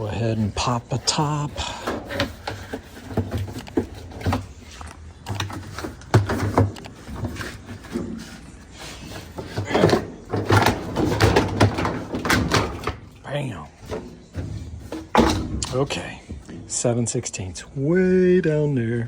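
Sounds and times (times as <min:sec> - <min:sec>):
washer parts knocking and clunking: 0:00.0 - 0:16.9
metal parts clattering: 0:05.3 - 0:16.2.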